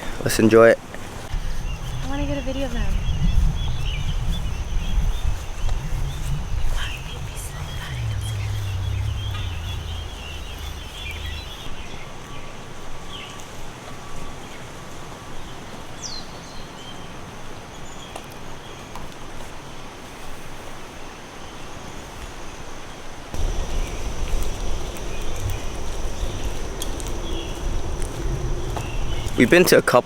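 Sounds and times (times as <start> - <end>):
background hiss: 1.3 - 11.7, 23.4 - 30.0
low rumble: 1.3 - 11.8, 23.4 - 29.5
bird chirps: 1.4 - 11.7, 23.4 - 29.4
falling whistled bird call: 23.4 - 29.4.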